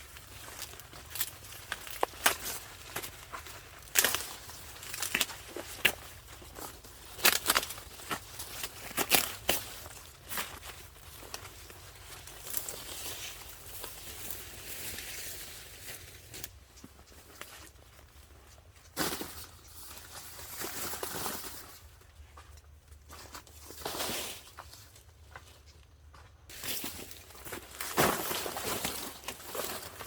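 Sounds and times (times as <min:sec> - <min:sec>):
dry corn leaves rustling and tearing: 0:00.0 - 0:16.6, 0:26.5 - 0:30.0.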